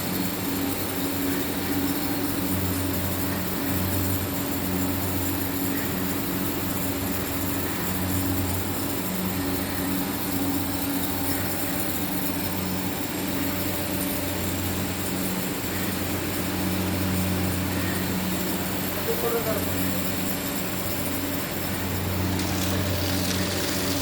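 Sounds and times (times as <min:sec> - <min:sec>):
low motor hum: 0:06.8 - 0:24.0.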